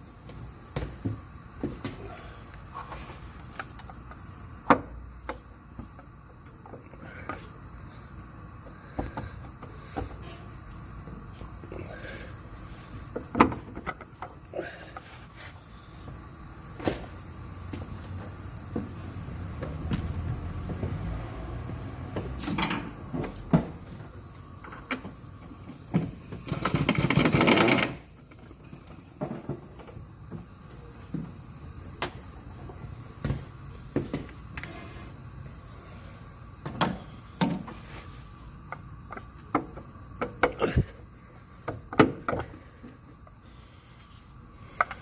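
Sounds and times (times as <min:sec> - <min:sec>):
car engine rumbling: 0:17.9 - 0:24.0.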